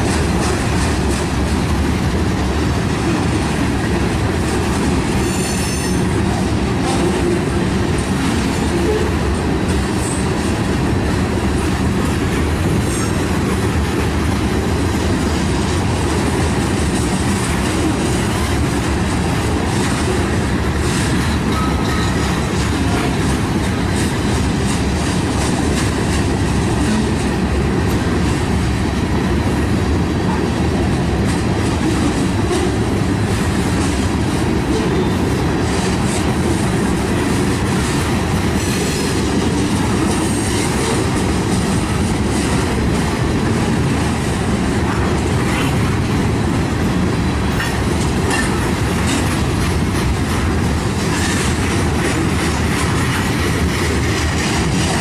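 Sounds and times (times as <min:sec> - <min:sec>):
wheels clicking over rail joints: 0:00.0 - 0:29.2, 0:31.1 - 0:55.0
steel wheels rumbling on rail: 0:00.0 - 0:55.0.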